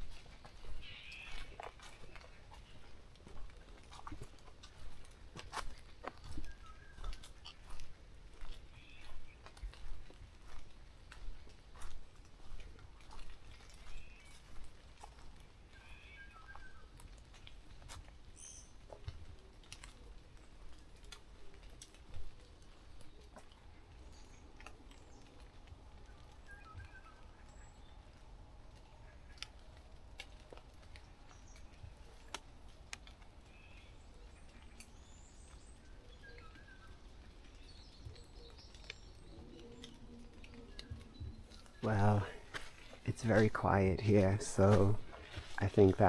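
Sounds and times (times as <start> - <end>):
distant bird chirps: 0.0 - 4.9, 5.5 - 11.9, 12.5 - 17.0, 22.6 - 29.6, 33.4 - 46.0
bird chirps: 0.4 - 2.9, 6.2 - 7.8, 15.7 - 16.9, 26.1 - 28.1, 33.5 - 43.4
small clicks and ticks: 16.5 - 43.6.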